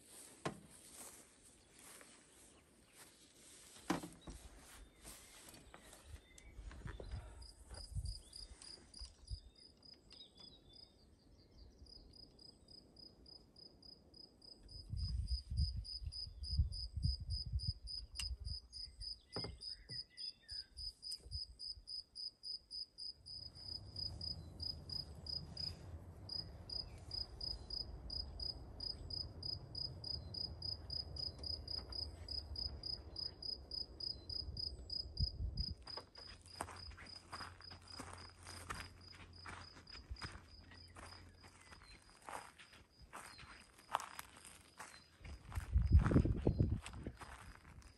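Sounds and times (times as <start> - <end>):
cricket chirping: 11.9 - 47.8.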